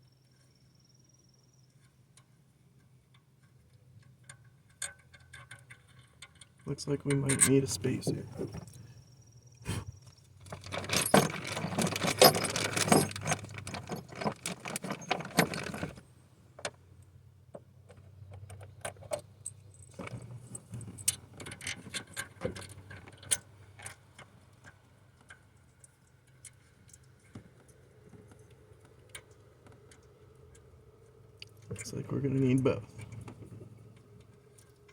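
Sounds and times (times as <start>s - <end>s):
small metal parts clinking: 10.4s - 16.0s.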